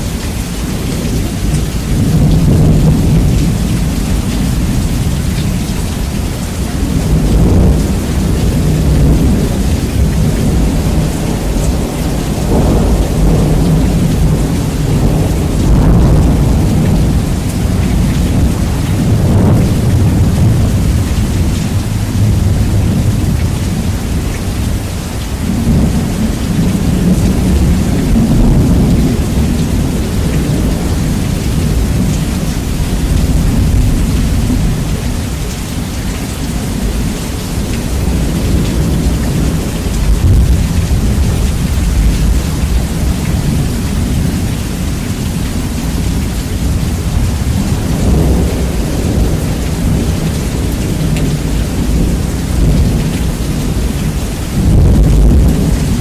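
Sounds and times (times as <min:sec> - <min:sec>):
rain hiss: 0:00.0 - 0:56.0
rolling thunder: 0:00.0 - 0:56.0.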